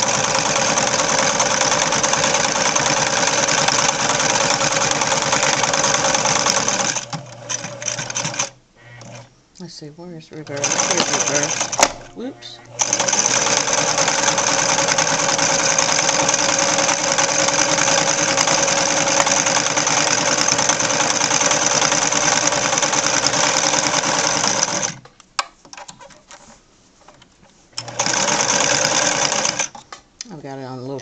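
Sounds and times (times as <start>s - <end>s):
sewing machine stitching: 0.0s - 9.3s, 10.5s - 25.0s, 27.8s - 29.8s.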